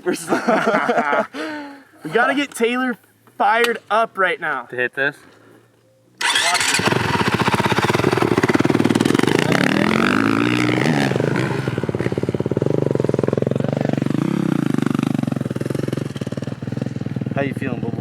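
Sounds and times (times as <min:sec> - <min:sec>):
dirt bike engine revving: 0:06.2 - 0:18.0.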